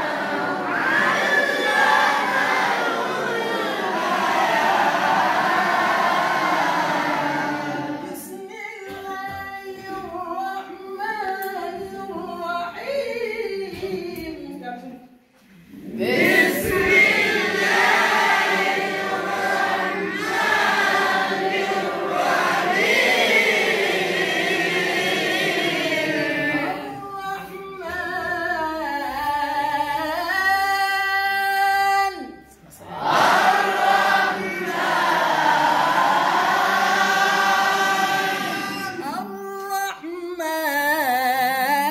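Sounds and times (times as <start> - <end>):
voices chanting together: 0.0 - 9.0, 15.4 - 30.2, 32.2 - 40.1.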